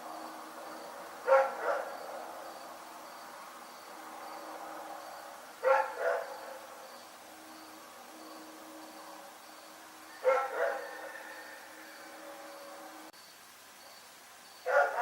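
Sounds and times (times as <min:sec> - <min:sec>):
dog barking: 0:01.2 - 0:02.0, 0:05.6 - 0:06.6, 0:10.2 - 0:11.2, 0:14.6 - 0:15.0.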